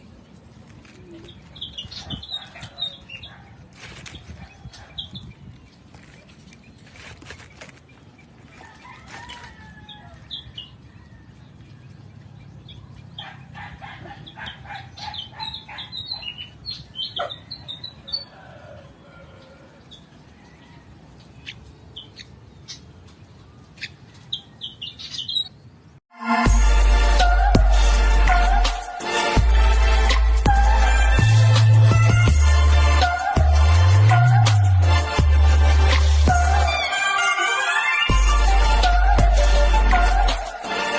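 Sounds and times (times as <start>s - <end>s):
rustling: 3.2s - 4.8s, 5.5s - 9.7s
bird squeaky chirps: 14.1s - 18.3s, 23.8s - 25.6s.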